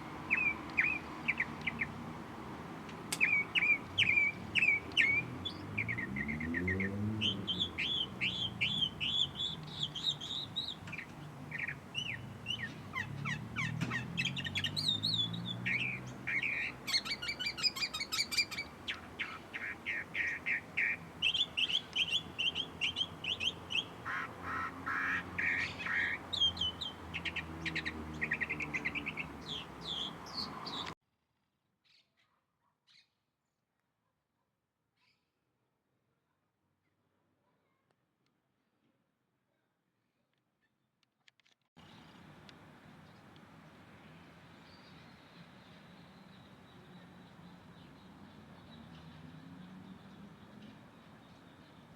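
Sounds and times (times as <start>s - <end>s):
small birds chirping: 0.0s - 31.0s, 41.8s - 51.9s.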